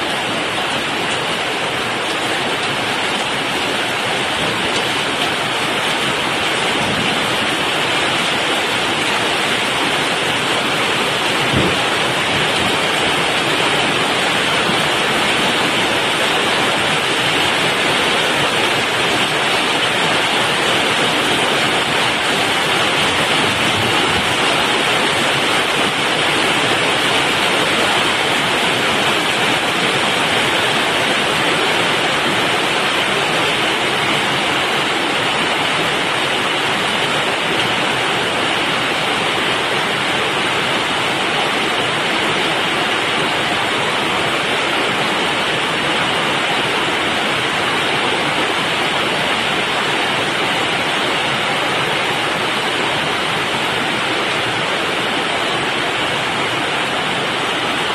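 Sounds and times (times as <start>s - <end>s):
heavy rain: 0.0s - 57.9s.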